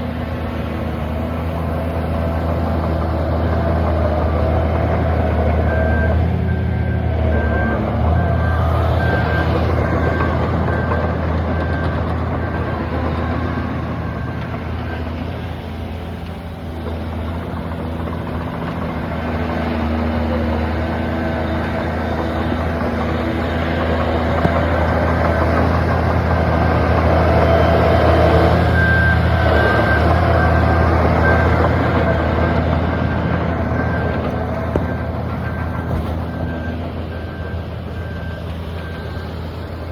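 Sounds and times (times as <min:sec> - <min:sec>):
heavy machinery diesel engines: 0:00.0 - 0:39.9
reversing alarm beeping: 0:00.0 - 0:39.9.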